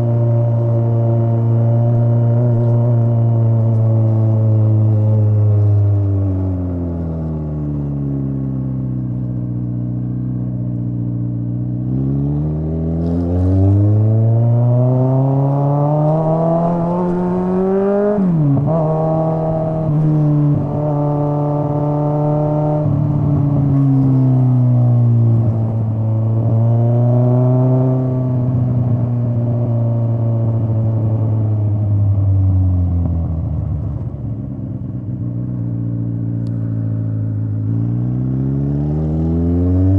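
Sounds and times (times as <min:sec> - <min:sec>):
motorcycle exhaust revving: 0:09.4 - 0:30.9.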